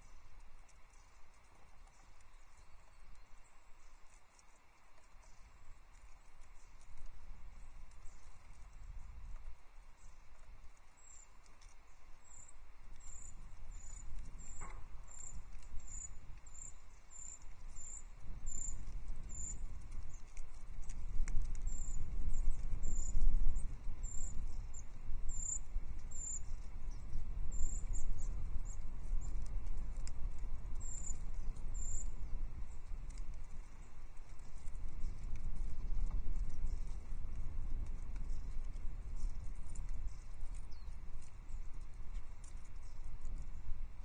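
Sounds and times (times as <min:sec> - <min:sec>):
low rumble and patter: 0:00.0 - 0:44.0.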